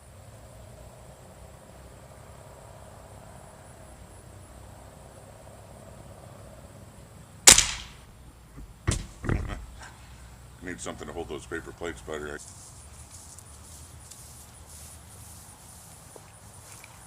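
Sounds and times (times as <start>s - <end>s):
air rifle shot: 7.5s - 8.1s.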